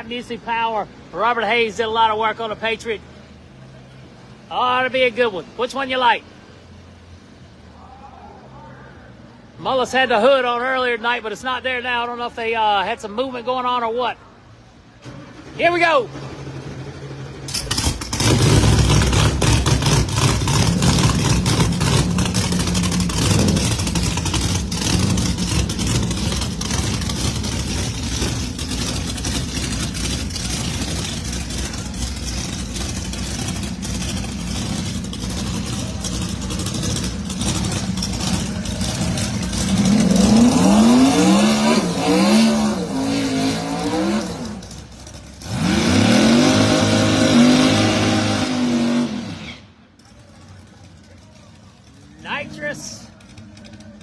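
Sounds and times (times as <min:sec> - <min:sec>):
drag racing cars at full throttle: 0:00.0 - 0:54.0
engine revving in blips: 0:15.0 - 0:49.8.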